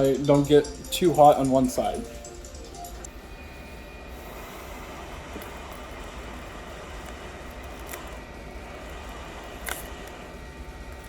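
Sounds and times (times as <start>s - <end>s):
low hum: 0.0s - 11.0s
hot air blower rushing hiss: 3.5s - 10.9s.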